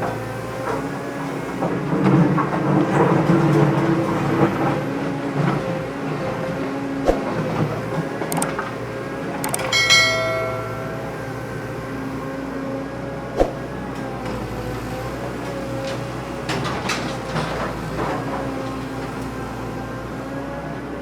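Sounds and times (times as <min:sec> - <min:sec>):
sharp knocks: 0:09.4 - 0:11.4
metallic clang: 0:09.4 - 0:11.7.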